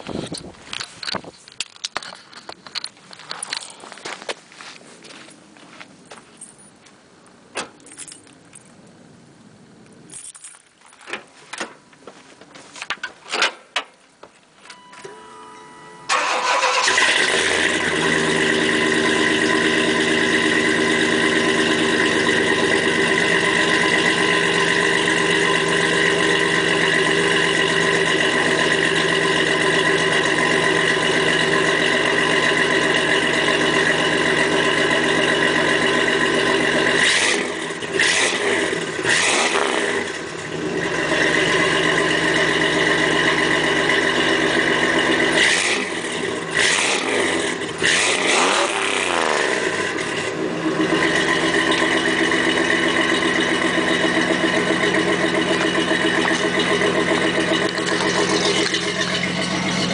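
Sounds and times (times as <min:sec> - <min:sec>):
car engine starting and idling: 0:14.6 - 0:59.9.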